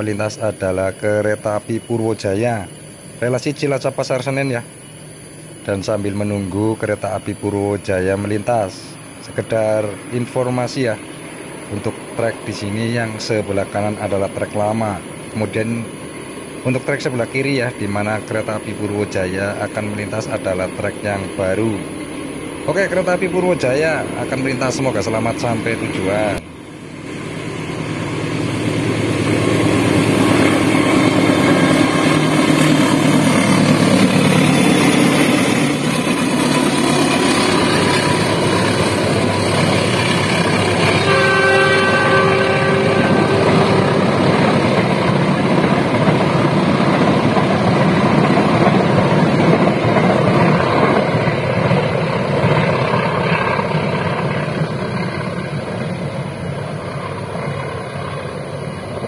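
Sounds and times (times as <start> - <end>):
diesel locomotive engine: 0.0 - 59.0
carriages clattering on rails: 27.9 - 59.0
train horn: 40.8 - 44.3.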